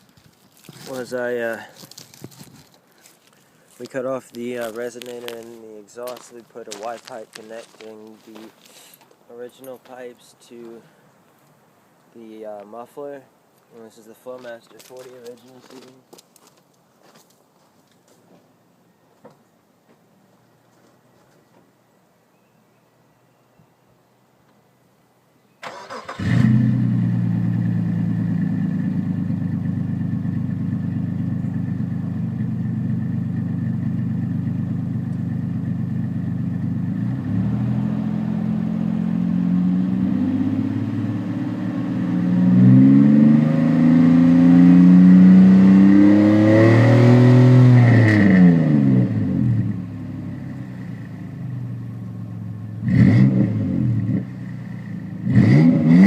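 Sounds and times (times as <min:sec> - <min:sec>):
car engine idling and revving: 0:26.2 - 0:56.0.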